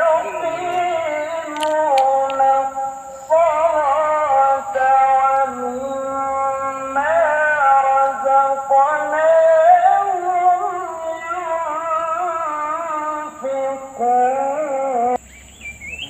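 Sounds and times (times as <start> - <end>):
person singing: 0.0 - 15.2.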